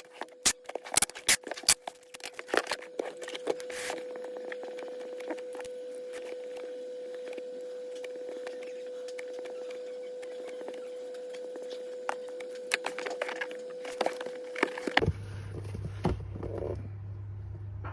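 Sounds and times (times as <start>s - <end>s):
deeper hum: 15.0s - 17.9s.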